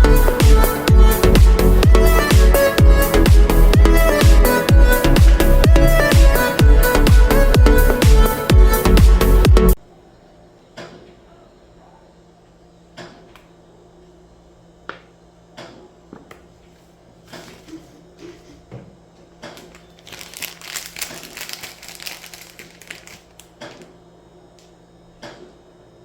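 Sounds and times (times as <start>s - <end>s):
crinkling and crunching handling: 19.5s - 23.9s.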